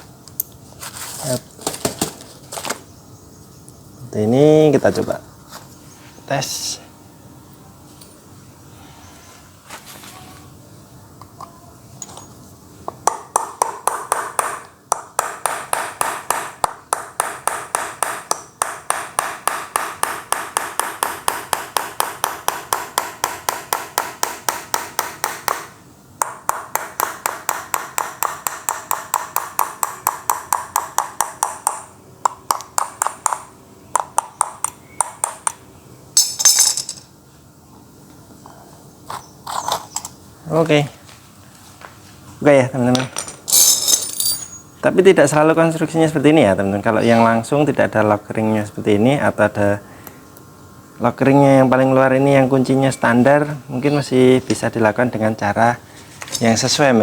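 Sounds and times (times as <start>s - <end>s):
hammer tapping metal punch: 13.0s - 35.6s
metallic rattle: 43.2s - 44.7s.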